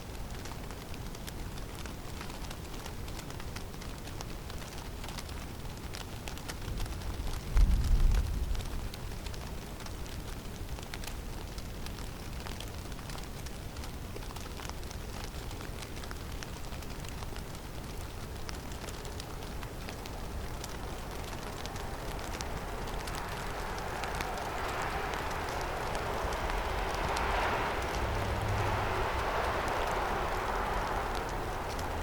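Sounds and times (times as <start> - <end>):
wind noise: 6.6 - 9.6, 18.3 - 32.0
faint sharp ticks: 17.9 - 32.0
low rumble: 20.3 - 32.0.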